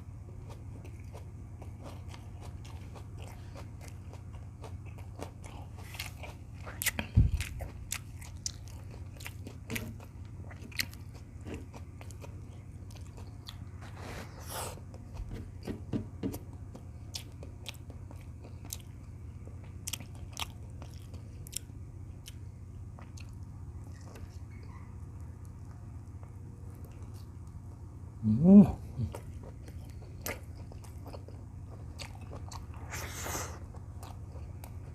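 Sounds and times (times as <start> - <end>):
person chewing and biting: 0.3 - 24.5, 28.8 - 34.9
low hum: 11.2 - 34.9.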